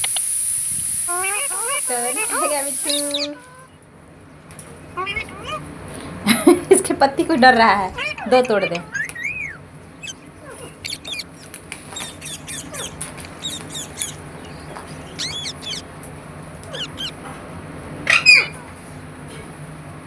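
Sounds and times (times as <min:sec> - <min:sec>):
parrot chirping and squawking: 0:00.0 - 0:03.8, 0:04.9 - 0:05.8, 0:07.8 - 0:17.3, 0:18.0 - 0:18.7.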